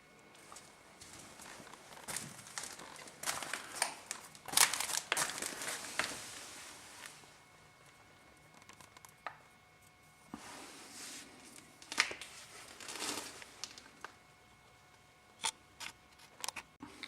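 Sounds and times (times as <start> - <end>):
material rustling and scraping: 9.9 - 13.6.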